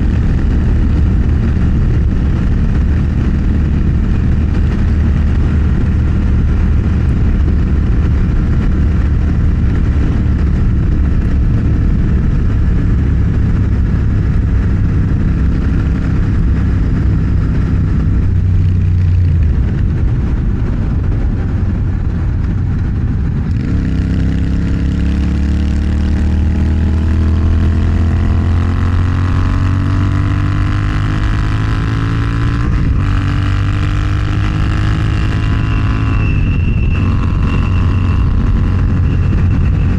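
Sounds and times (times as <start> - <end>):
motorcycle engine accelerating: 0.0 - 39.9
rushing wind: 0.0 - 39.9.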